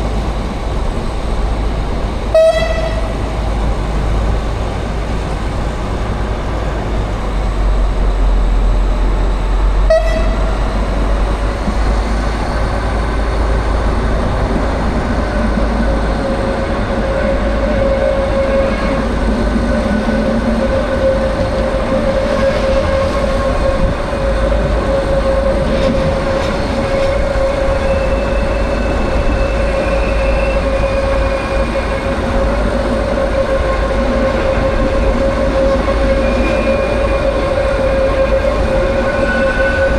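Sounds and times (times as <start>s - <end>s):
train running: 0.0s - 39.9s.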